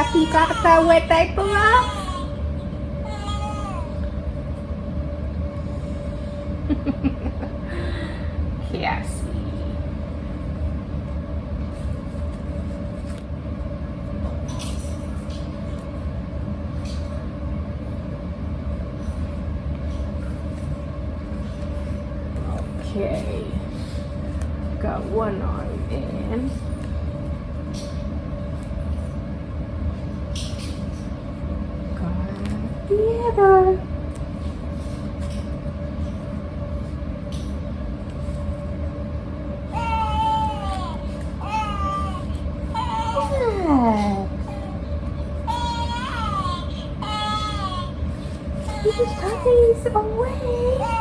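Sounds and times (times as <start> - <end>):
low mechanical hum: 0.0 - 51.0
falling baby-like coo: 3.0 - 4.0, 39.7 - 44.8.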